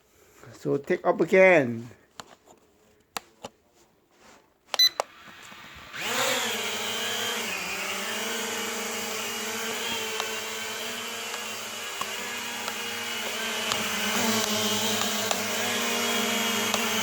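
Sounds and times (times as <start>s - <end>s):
toy drone propeller buzz: 5.1s - 17.0s
handling clicks: 11.3s - 15.6s.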